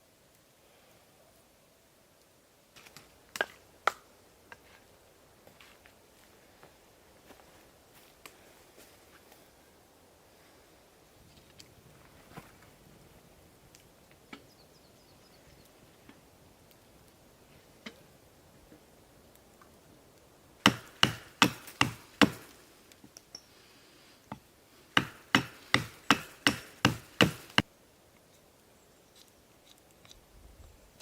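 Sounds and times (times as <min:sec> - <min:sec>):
wood chopping strikes: 0:20.6 - 0:22.6, 0:24.3 - 0:27.6.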